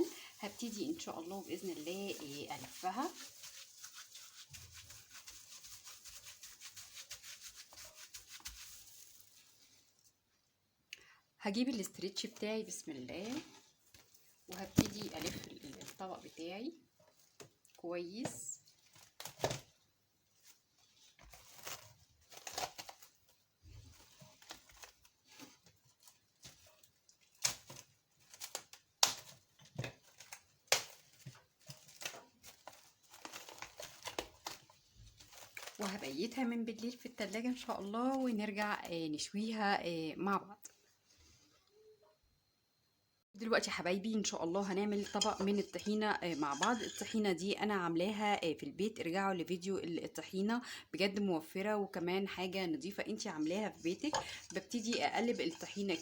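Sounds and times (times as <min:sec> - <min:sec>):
hands rubbing meat in a bowl: 0:00.0 - 0:10.0, 0:44.3 - 0:47.2, 0:52.5 - 0:56.0.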